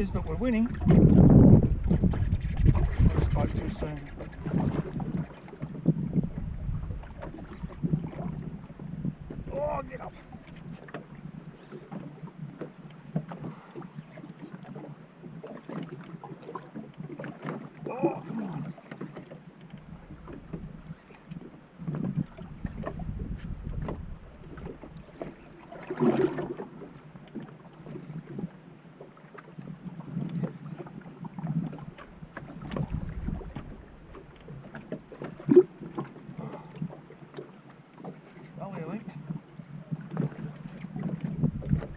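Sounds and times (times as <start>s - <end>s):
wind on the microphone: 0.0s - 11.5s, 19.8s - 25.1s, 29.9s - 34.6s, 39.2s - 41.9s
water splashing against hull: 0.0s - 41.9s.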